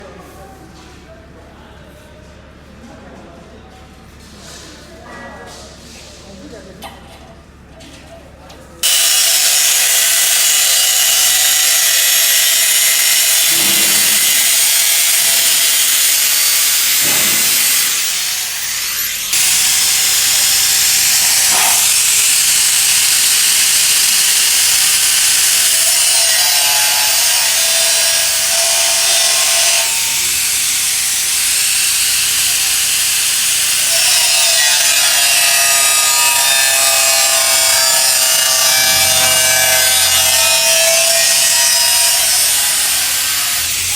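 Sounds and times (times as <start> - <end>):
power saw cutting metal tube: 8.8 - 43.9.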